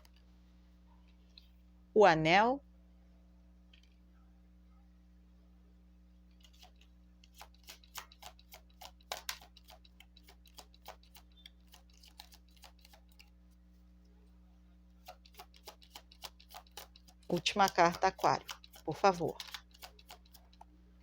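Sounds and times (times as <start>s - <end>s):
faint steady hum: 0.0s - 21.0s
cards being handled: 6.4s - 13.7s, 15.0s - 20.7s.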